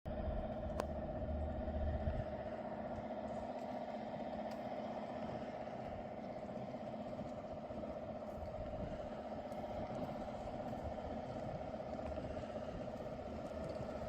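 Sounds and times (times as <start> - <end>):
truck diesel engine running: 0.1 - 14.0.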